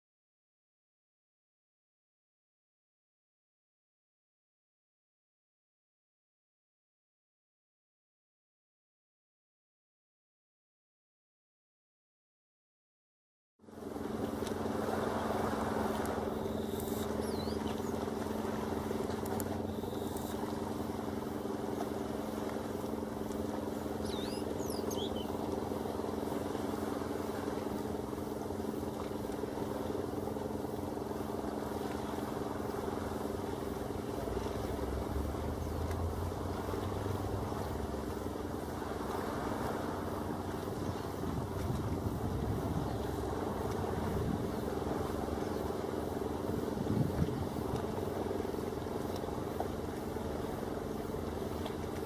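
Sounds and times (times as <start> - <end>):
steady machine drone: 13.6 - 52.0
faint bird chirps: 16.4 - 18.0, 24.0 - 25.4.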